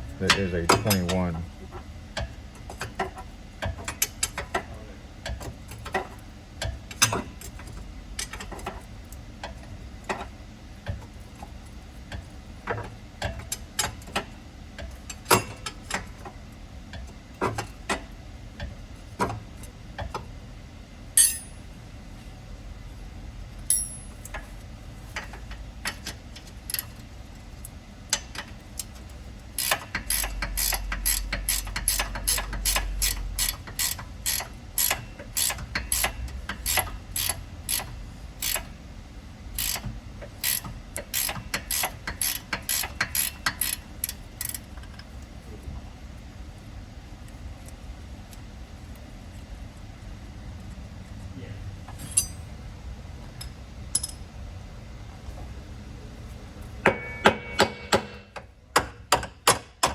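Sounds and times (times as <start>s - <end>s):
ratchet wrench clicking: 29.6s - 38.7s, 39.6s - 44.6s
metal knocks: 56.8s - 59.9s.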